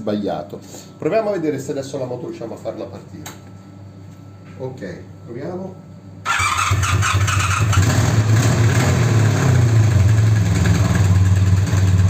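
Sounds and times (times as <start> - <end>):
motorcycle engine running: 6.3 - 12.0.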